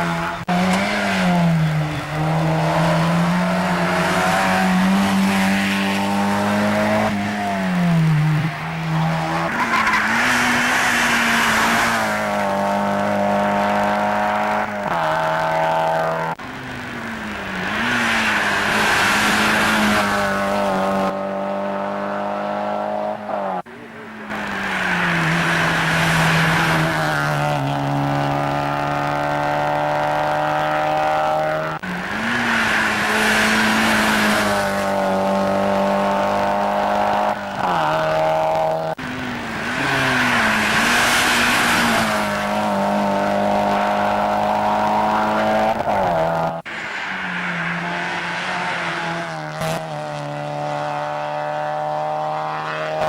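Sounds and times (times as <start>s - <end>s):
race car engines running hard: 0.0s - 53.0s
rushing noise: 46.1s - 49.4s.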